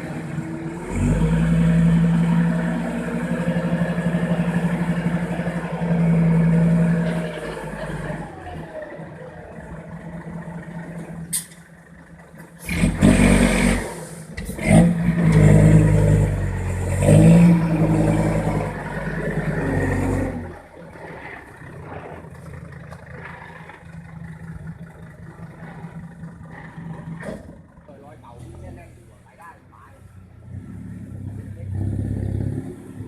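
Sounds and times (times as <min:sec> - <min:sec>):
diesel truck engine idling: 0:00.0 - 0:12.8, 0:17.6 - 0:30.5
diesel truck engine revving: 0:00.0 - 0:33.0.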